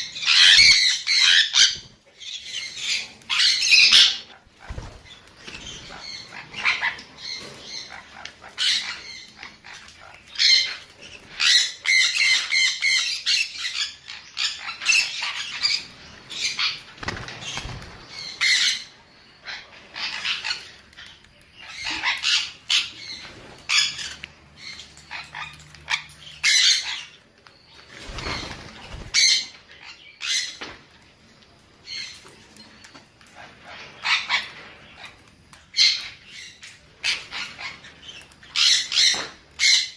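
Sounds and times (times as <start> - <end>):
parrot squawking: 0.0 - 16.9, 21.6 - 27.1, 33.4 - 35.1.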